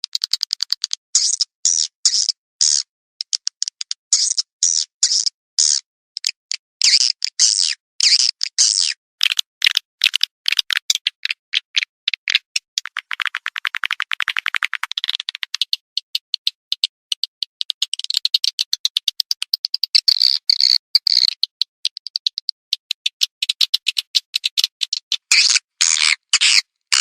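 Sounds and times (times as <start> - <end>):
swiftlet clicking chirps: 6.2 - 27.0.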